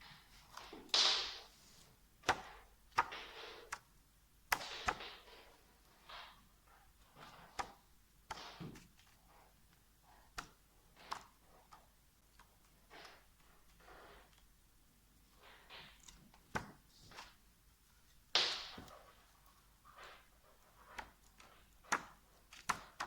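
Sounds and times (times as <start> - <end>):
small objects clicking and tapping: 2.2 - 3.9, 4.5 - 9.3, 10.3 - 14.5, 18.3 - 23.0.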